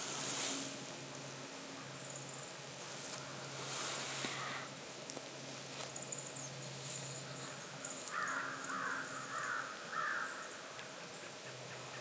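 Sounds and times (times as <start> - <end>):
bird giving harsh raspy calls: 7.4 - 10.6.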